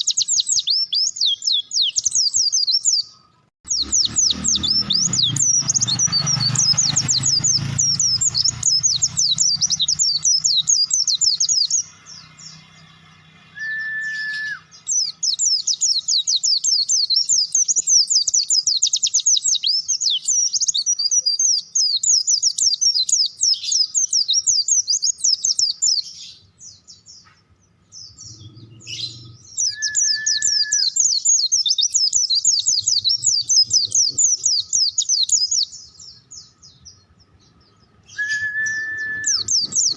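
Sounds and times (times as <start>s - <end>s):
bird twittering song: 0.0s - 39.9s
short steady whistle: 13.6s - 14.6s, 38.2s - 39.4s.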